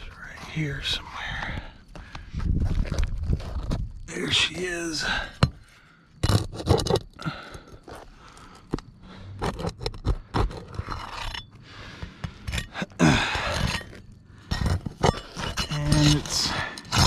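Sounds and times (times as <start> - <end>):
tool scraping under shingles: 5.0 - 17.0.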